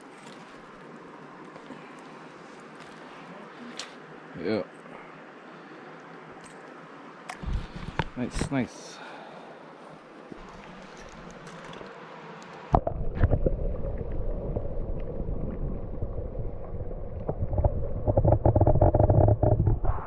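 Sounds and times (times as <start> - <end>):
river water flowing: 0.0 - 12.9
microphone handling rumble: 17.0 - 20.0.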